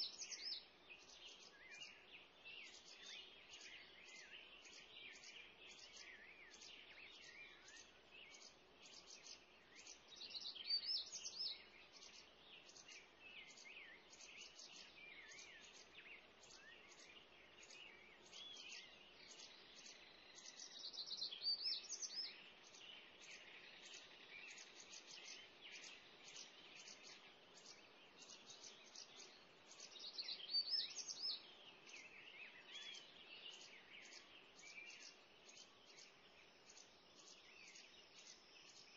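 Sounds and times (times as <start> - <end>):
bird warbling song: 0.0 - 38.9
birds chirping: 0.0 - 38.9.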